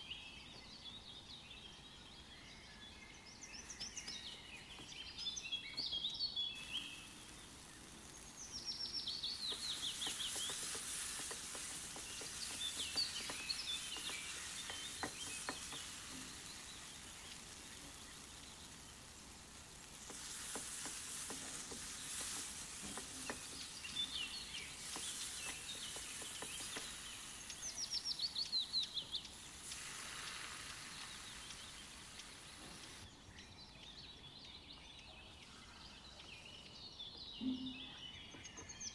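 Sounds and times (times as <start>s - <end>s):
masala sizzling in oil: 6.5s - 33.1s.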